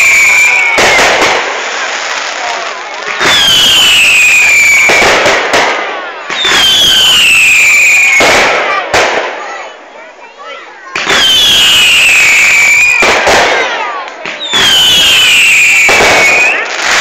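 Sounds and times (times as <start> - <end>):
falling firework whistle: 0.0 - 1.4, 3.1 - 5.4, 6.3 - 8.7, 11.0 - 13.7, 14.3 - 17.0
fireworks crackling bursts: 0.0 - 17.0.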